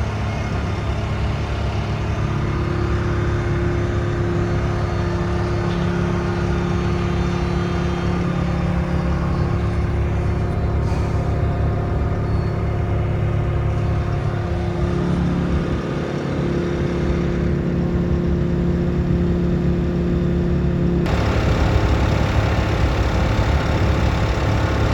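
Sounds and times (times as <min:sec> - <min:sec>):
diesel engine running: 0:21.1 - 0:24.9
steady hum: 0:21.1 - 0:24.9.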